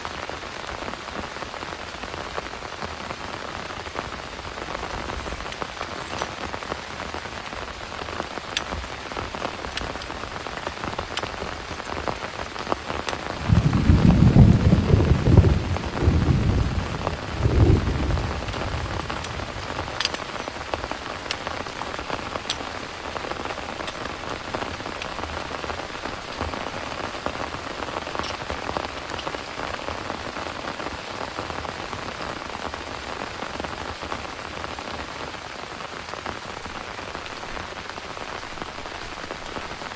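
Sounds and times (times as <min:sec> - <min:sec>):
heavy rain falling: 0:00.0 - 0:39.9
low rumble of thunder: 0:13.3 - 0:20.7.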